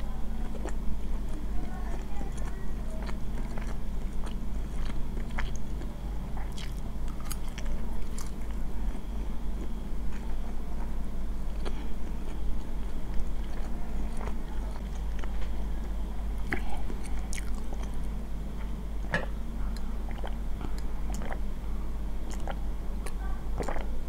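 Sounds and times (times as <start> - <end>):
chewing: 0.4 - 21.4, 22.3 - 24.0
gulping a drink: 19.1 - 21.5, 22.2 - 24.0.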